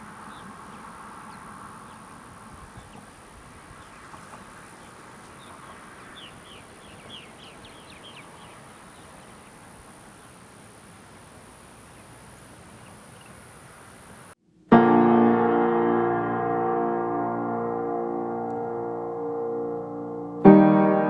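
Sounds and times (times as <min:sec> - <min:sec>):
bird chirping: 0:00.0 - 0:14.3.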